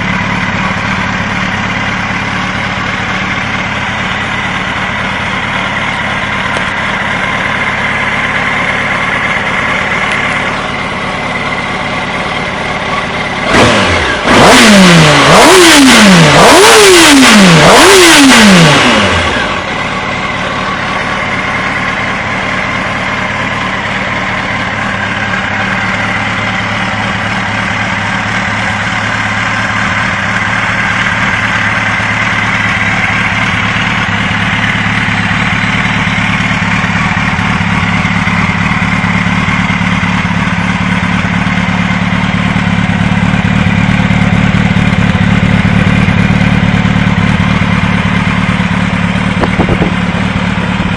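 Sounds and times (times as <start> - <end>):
motorcycle engine revving and idling: 0.0 - 50.9.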